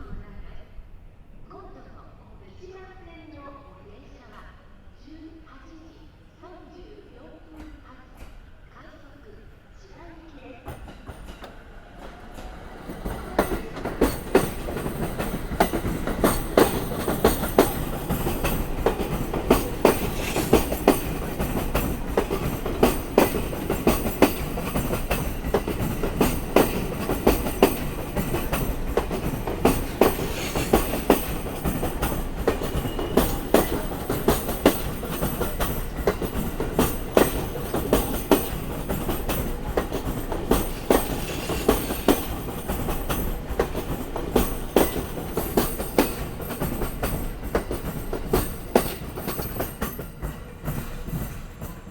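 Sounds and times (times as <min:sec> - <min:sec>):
train rolling rumble: 0:10.5 - 0:51.9
train wheels clacking on rail joints: 0:10.7 - 0:51.9.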